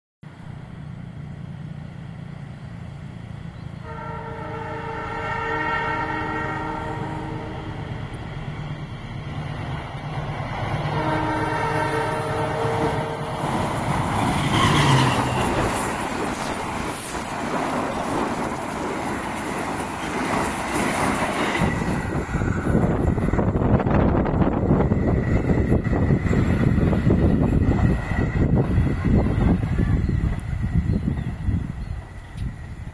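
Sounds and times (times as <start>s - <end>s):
train passing with rail clatter: 0.2s - 32.9s
train horn chord: 3.8s - 7.8s, 10.9s - 13.7s.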